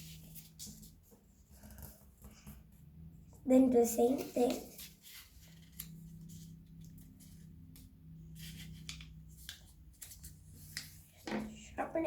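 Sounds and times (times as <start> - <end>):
paper being folded and creased: 0.0 - 2.4, 4.1 - 11.2.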